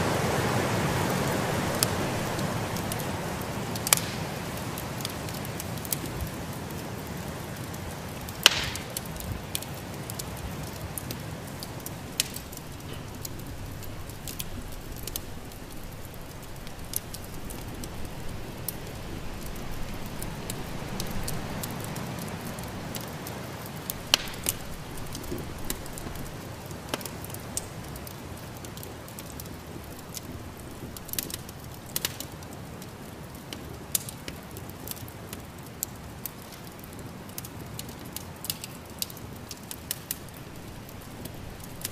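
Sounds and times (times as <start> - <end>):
fire low rushing: 0.0 - 32.4
wood fire crackling and popping: 0.0 - 41.9.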